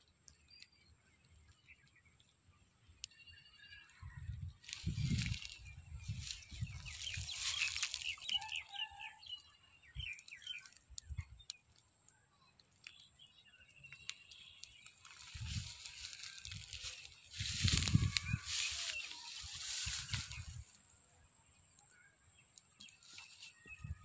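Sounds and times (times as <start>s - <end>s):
birds chirping: 0.1s - 24.0s
rustling: 4.6s - 8.4s, 14.9s - 20.8s.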